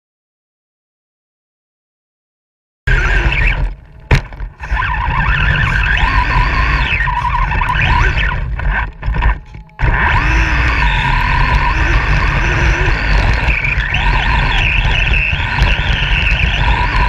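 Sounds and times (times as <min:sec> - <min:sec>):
steady low rumble: 0:02.9 - 0:17.0
truck motor revving: 0:02.9 - 0:17.0.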